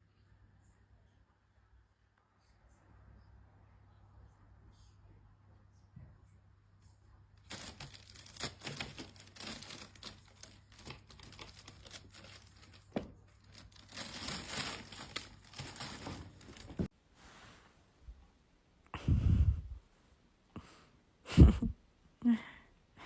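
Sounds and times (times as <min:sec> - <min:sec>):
crinkling and rustling: 0:07.4 - 0:17.8.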